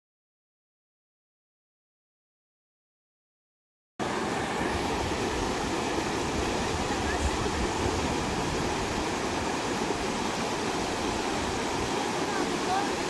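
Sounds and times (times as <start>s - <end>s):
fast-flowing river rushing: 4.0s - 13.0s.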